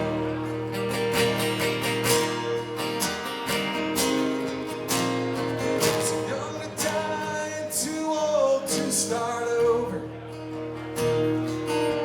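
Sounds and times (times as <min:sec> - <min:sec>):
acoustic guitars strumming: 0:00.0 - 0:12.0.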